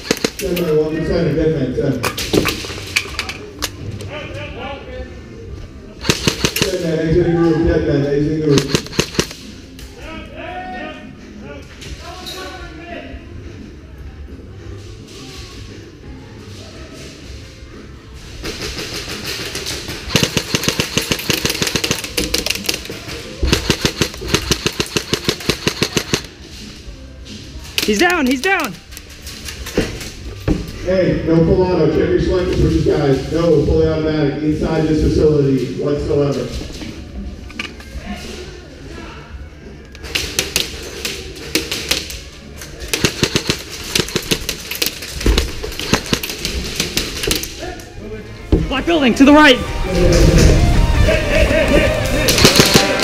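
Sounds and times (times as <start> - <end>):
airsoft rifles firing full auto: 0.0 - 0.6, 6.0 - 6.9, 8.5 - 9.4, 19.0 - 26.3, 42.9 - 47.5, 52.3 - 53.0.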